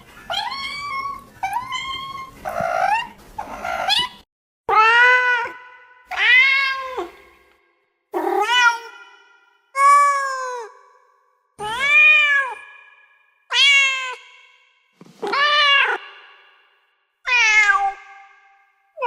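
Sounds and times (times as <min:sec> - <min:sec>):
cats meowing: 0:00.2 - 0:07.2, 0:17.3 - 0:18.0.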